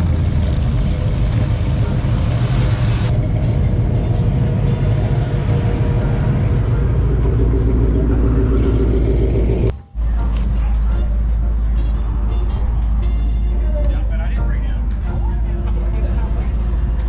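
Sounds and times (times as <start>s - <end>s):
car engine deep rumble: 0.0s - 17.0s.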